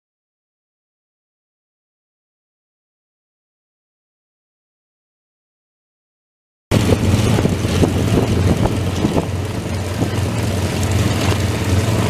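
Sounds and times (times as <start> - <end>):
engine droning: 6.7 - 12.0
wind buffeting microphone: 6.7 - 12.0.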